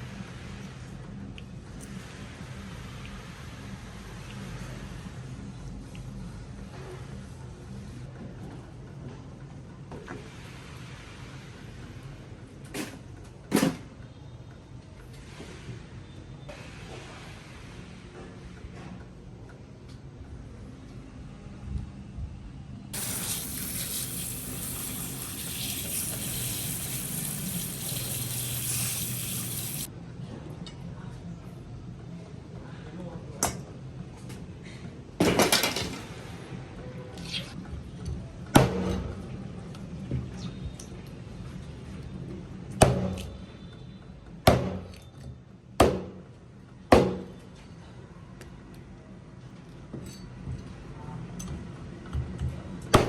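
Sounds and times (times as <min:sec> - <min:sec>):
tap water running into sink: 0:23.0 - 0:29.9.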